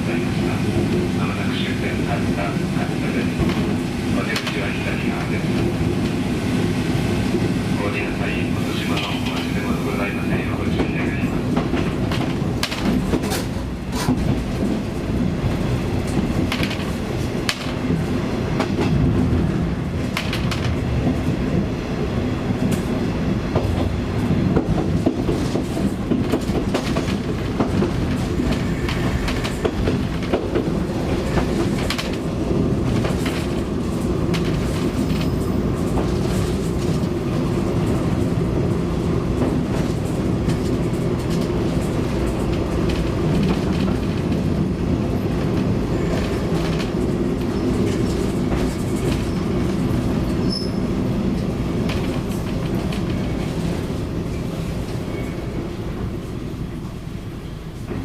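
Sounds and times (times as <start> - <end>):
train wheels clicking over rail joints: 10.8 - 19.4, 22.6 - 38.4, 39.3 - 53.8.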